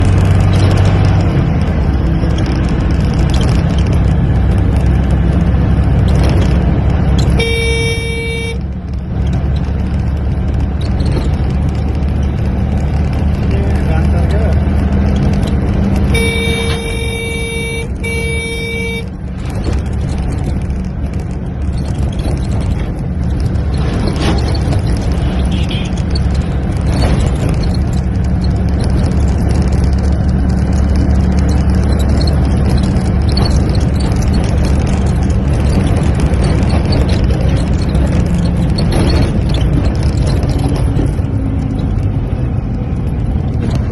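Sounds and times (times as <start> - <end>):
low rumble of traffic: 0.0 - 43.9
horn-like tone: 7.3 - 8.6, 16.1 - 19.1.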